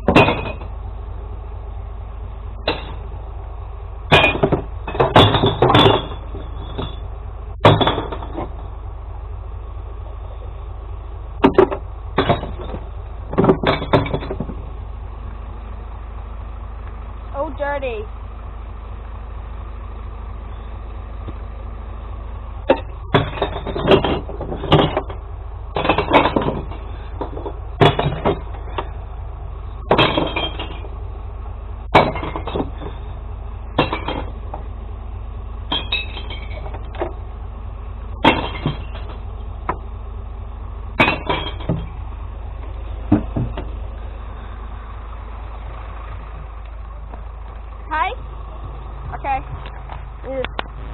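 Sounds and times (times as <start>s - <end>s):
truck engine idling: 0.0s - 50.9s
glass bottles smashing: 4.1s - 7.0s, 29.9s - 30.9s, 35.7s - 36.7s, 38.2s - 39.2s, 41.0s - 41.9s.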